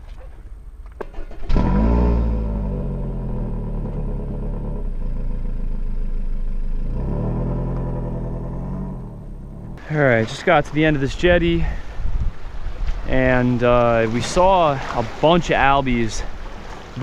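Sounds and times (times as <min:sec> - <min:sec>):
car engine starting and revving: 0:01.0 - 0:10.1.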